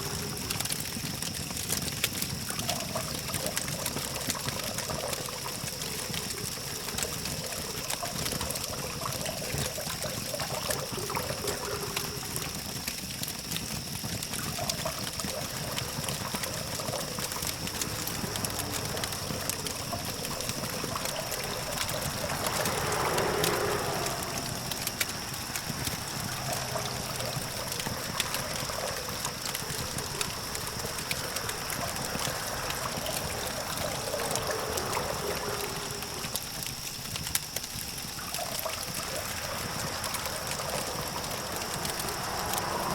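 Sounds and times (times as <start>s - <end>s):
campfire crackling and popping: 0.0s - 42.9s
distant traffic hum: 2.1s - 12.9s, 14.4s - 42.9s
vehicle passing: 16.7s - 36.7s, 37.7s - 42.9s.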